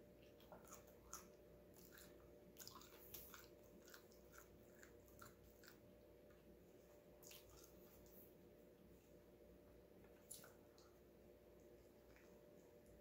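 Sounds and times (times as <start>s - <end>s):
chewing with wet mouth clicks: 0.2s - 6.4s, 7.2s - 8.2s, 10.1s - 11.0s.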